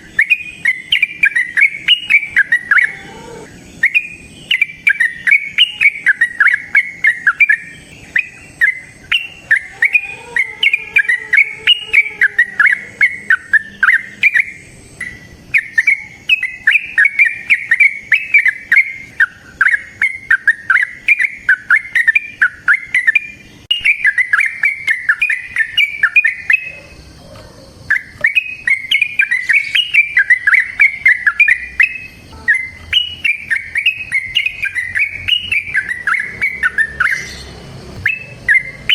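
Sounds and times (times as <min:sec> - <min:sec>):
bulbul warbling song: 0:00.0 - 0:38.9.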